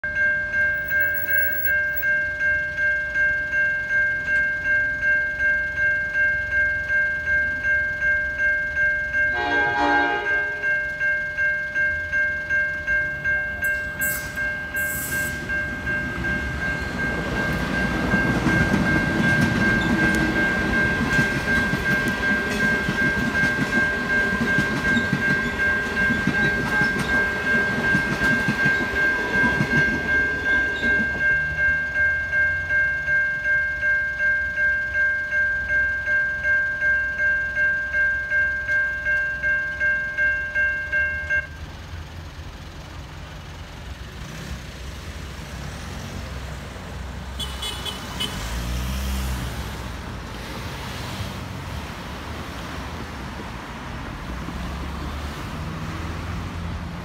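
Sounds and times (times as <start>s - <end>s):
level crossing bell ringing: 0.0s - 41.7s
train wheels on rails: 0.7s - 8.8s, 9.4s - 33.4s
train horn blast: 9.3s - 10.6s.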